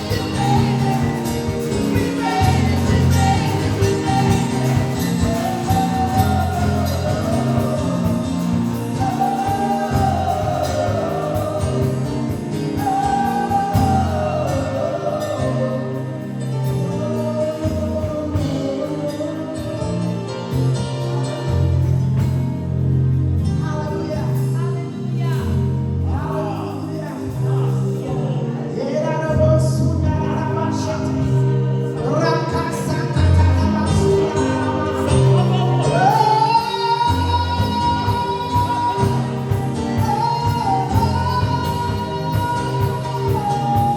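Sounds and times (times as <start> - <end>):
voices singing along: 0.0 - 20.2
person singing slow song: 0.0 - 20.6, 26.4 - 43.9
bass and keyboard: 0.0 - 43.9.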